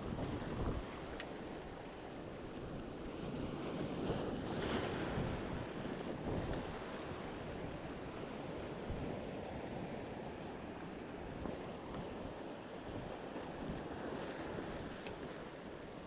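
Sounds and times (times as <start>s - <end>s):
wind buffeting microphone: 0.0s - 1.2s, 2.6s - 10.5s
sea waves washing in: 0.0s - 16.0s.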